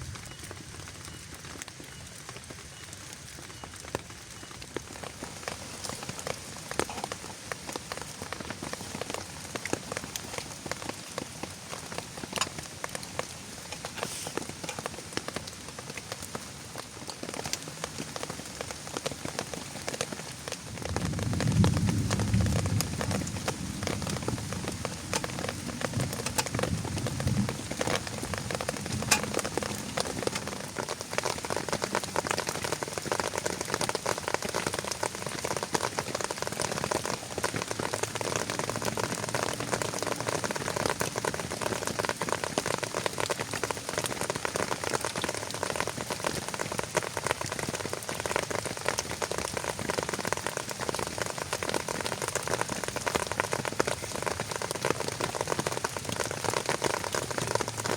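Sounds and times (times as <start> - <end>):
rain falling: 0.0 - 57.9.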